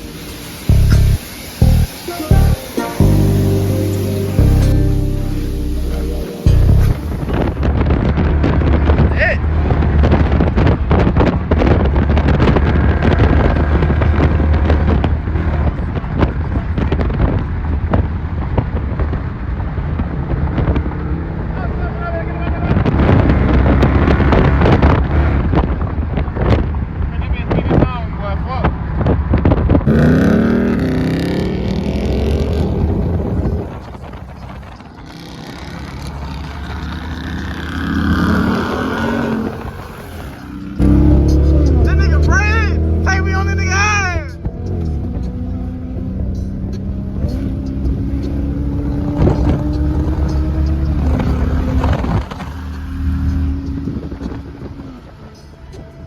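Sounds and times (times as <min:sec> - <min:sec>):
road noise: 0:00.0 - 0:56.0
vehicle engine drone: 0:00.0 - 0:56.0
wind buffeting microphone: 0:06.7 - 0:21.6, 0:22.4 - 0:41.0, 0:47.8 - 0:56.0.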